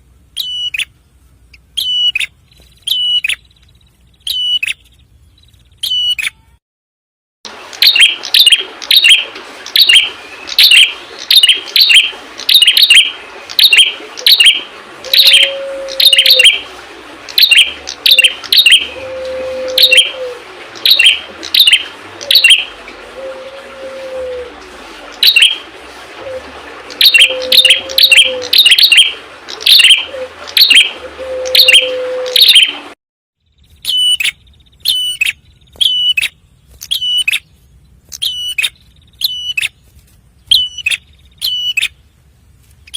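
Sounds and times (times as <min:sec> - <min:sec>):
songbird sharp chirps: 0:01.5 - 0:06.5, 0:33.4 - 0:39.8.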